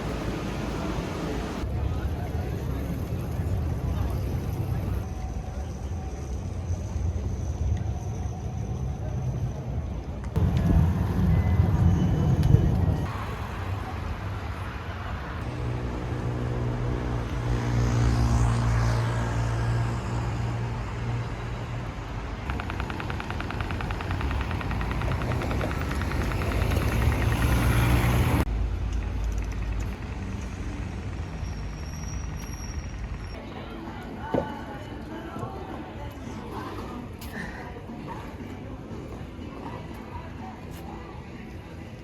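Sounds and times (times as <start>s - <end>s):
street traffic: 0.0s - 42.0s
large vehicle engine running: 22.4s - 33.4s.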